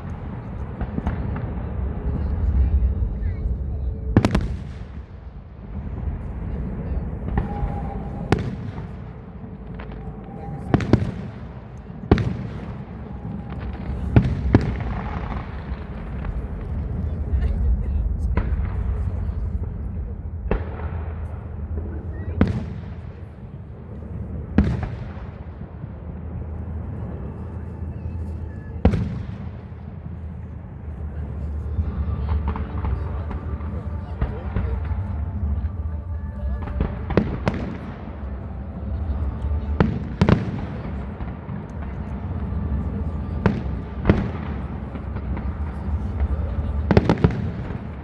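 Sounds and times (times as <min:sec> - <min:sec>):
rolling echo: 0:00.0 - 0:48.0.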